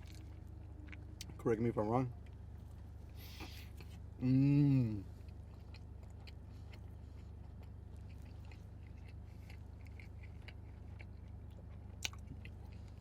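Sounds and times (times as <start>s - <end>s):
person chewing food: 0.0s - 1.3s, 2.2s - 13.0s
low hum: 0.0s - 13.0s.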